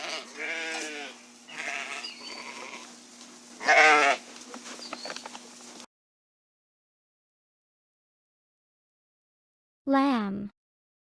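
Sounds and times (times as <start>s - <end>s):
sheep bleating: 0.0s - 2.9s, 3.6s - 4.2s.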